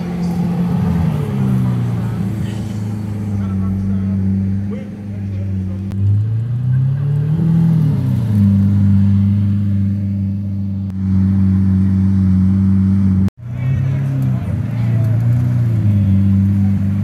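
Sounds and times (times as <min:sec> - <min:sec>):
car engine at low revs: 0:00.0 - 0:17.0.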